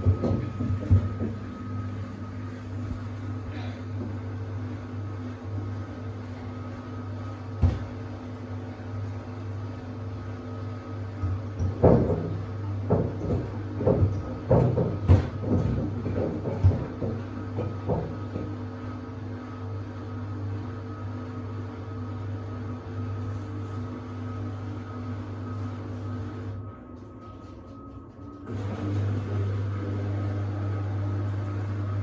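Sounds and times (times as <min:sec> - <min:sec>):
shoes thumping against drum: 0:00.0 - 0:01.5
washing machine drum humming: 0:00.0 - 0:32.0.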